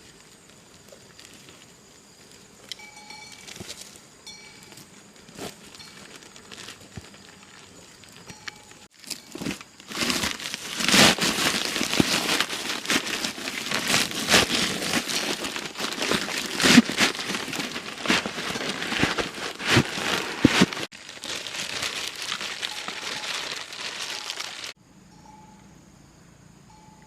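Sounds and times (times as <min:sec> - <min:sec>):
dense crackling and rustling: 0:05.1 - 0:24.8.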